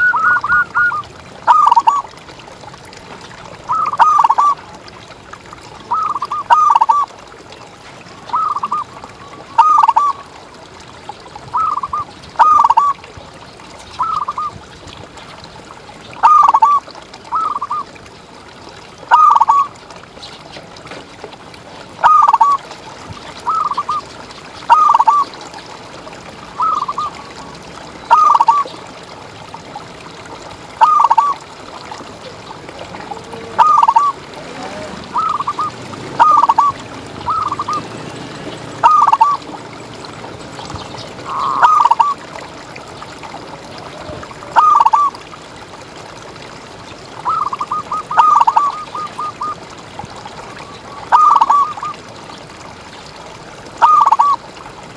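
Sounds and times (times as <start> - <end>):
dove cooing: 0.0 - 2.1, 3.7 - 4.6, 9.6 - 10.2, 11.6 - 12.9, 28.1 - 28.7, 30.8 - 31.4, 32.1 - 42.3, 44.5 - 45.2, 47.3 - 49.6, 51.1 - 51.9, 53.8 - 54.4.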